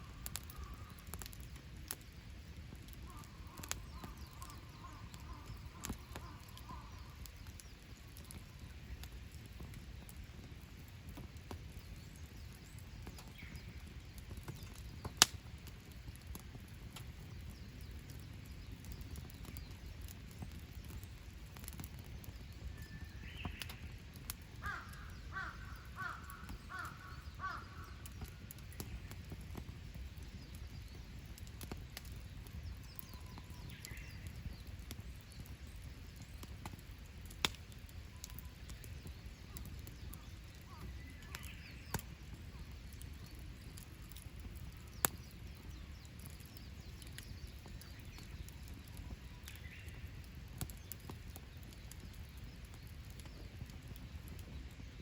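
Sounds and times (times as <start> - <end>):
campfire pop: 0.0 - 55.0
campfire rumble: 0.0 - 55.0
crow cawing: 24.6 - 28.0.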